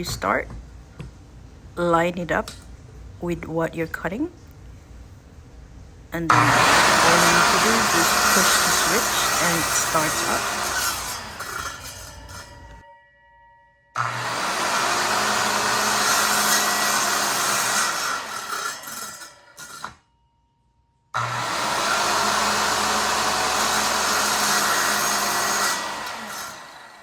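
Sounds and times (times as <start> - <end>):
circular saw cutting wood: 6.3 - 12.8, 14.0 - 20.0, 21.2 - 27.0.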